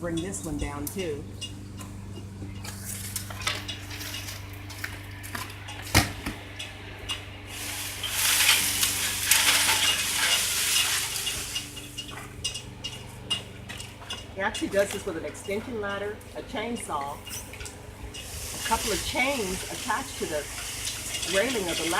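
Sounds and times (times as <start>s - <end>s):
steady low hum: 0.0s - 21.9s
leafy tree branch crackling down: 7.5s - 11.6s.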